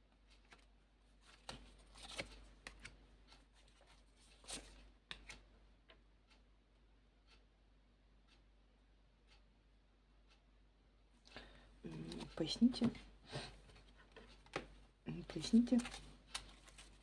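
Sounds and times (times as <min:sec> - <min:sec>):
cards clicking and rustling: 0:00.5 - 0:03.0, 0:15.4 - 0:17.0.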